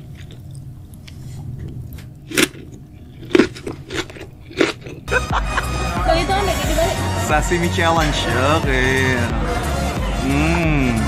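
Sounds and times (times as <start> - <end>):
wet crunching and chewing: 0.0 - 5.2
restaurant chatter: 3.4 - 11.0
background music: 4.6 - 11.0.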